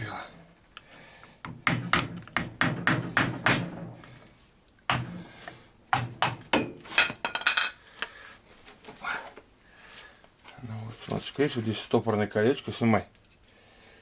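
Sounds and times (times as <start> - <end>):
hammer knocking on metal: 1.5 - 3.9.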